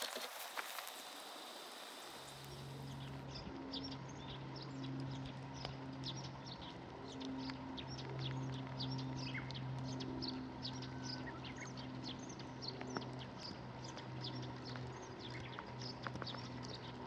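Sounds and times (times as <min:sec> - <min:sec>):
small birds chirping: 0:00.0 - 0:03.2
steady low hum: 0:00.0 - 0:03.2.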